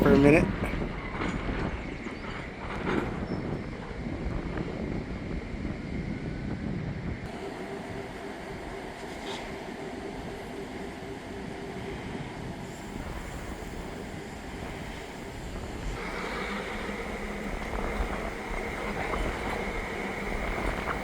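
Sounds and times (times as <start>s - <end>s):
wind on microphone: 0.0s - 7.3s
diesel locomotive engine drone: 0.0s - 21.0s.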